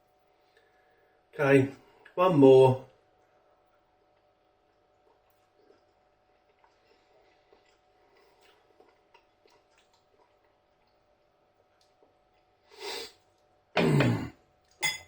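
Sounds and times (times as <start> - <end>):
man chewing: 5.0 - 12.5
short snort through the nose: 12.7 - 13.2.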